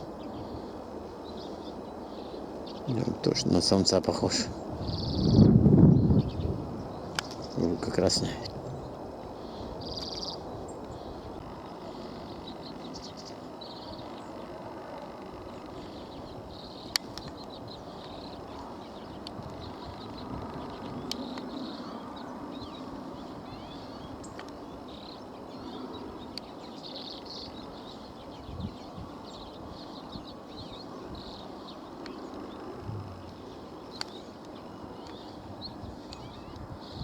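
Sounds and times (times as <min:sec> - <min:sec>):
birds twittering: 0:00.0 - 0:37.0
low background rumble: 0:32.6 - 0:33.8.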